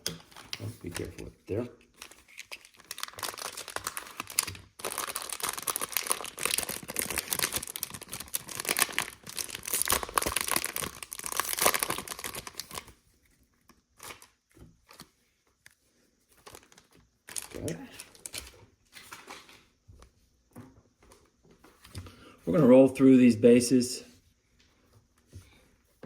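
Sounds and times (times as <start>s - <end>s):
plastic wrapper tearing and crinkling: 0.0s - 15.8s, 16.4s - 19.6s.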